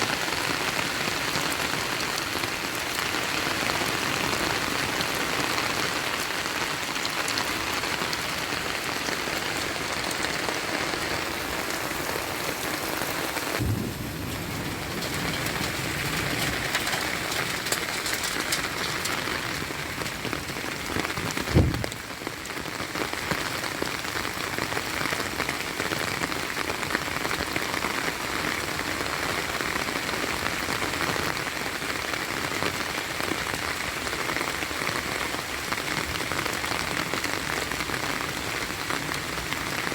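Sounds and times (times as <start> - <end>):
heavy rain: 0.0 - 39.9
low thump: 21.5 - 22.0.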